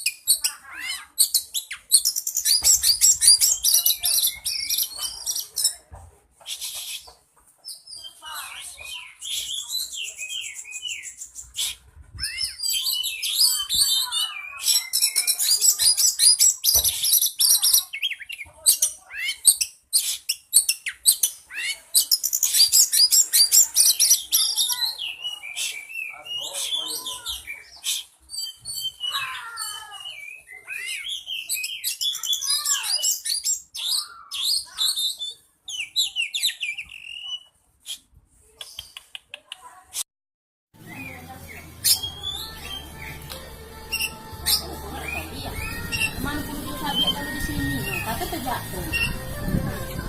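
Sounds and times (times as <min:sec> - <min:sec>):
songbird singing: 0:40.8 - 0:50.0.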